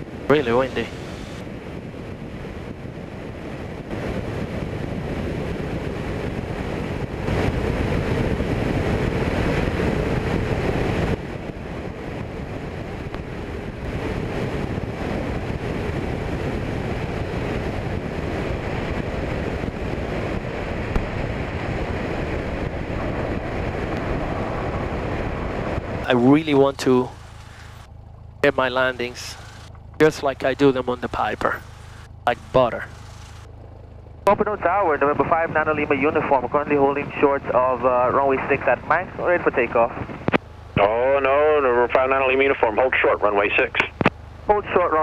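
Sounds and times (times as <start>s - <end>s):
wind rushing past: 0.0s - 40.8s
aircraft engine and propeller drone: 0.0s - 45.0s.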